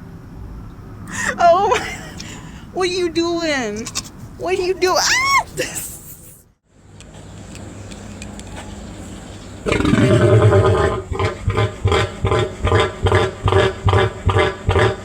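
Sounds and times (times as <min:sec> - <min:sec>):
farm animal calling: 0:03.1 - 0:05.8.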